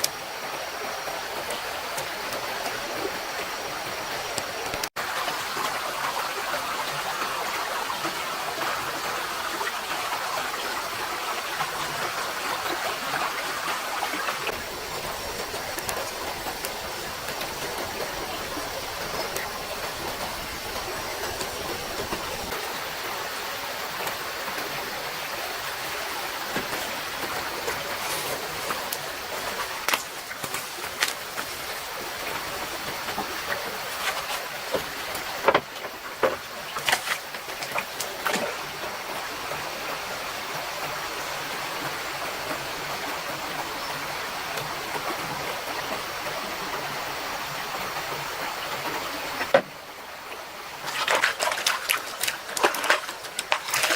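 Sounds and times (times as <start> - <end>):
stream water running: 0.0 - 53.9
sharp clicks and knocks: 33.1 - 38.4.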